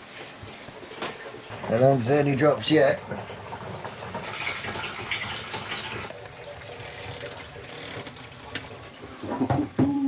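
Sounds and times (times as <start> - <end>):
water running from hose into tank: 0.0 - 10.0.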